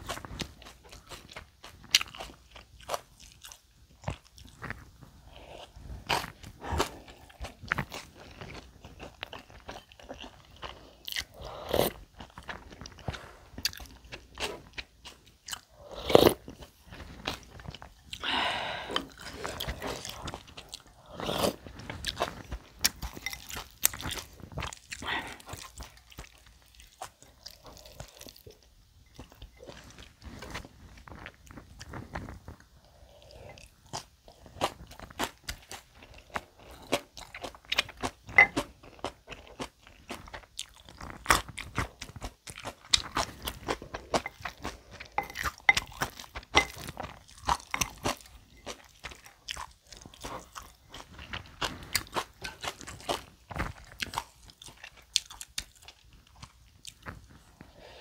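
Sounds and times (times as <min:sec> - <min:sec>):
wet chewing: 0:00.0 - 0:57.8
food crunches: 0:29.2 - 0:57.4.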